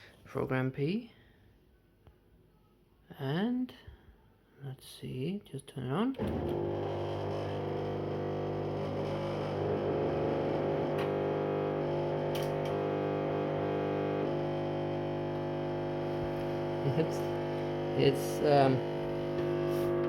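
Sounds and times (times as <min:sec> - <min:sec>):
washing machine drain pump humming: 0:06.2 - 0:20.0.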